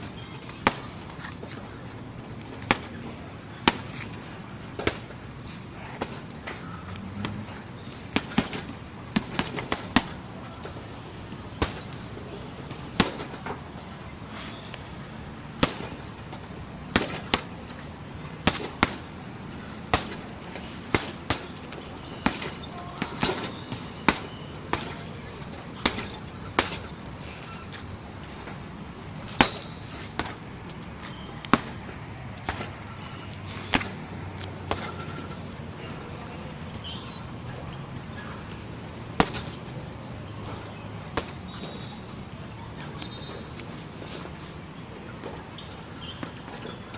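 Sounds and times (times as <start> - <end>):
strikes on punching bag: 8.2 - 10.2, 11.6 - 12.0, 13.0 - 13.5, 15.6 - 16.1, 16.9 - 17.5, 18.4 - 19.1, 19.9 - 25.1, 25.8 - 27.0, 29.3 - 30.4, 31.1 - 32.8, 39.2 - 39.6, 41.1 - 42.0.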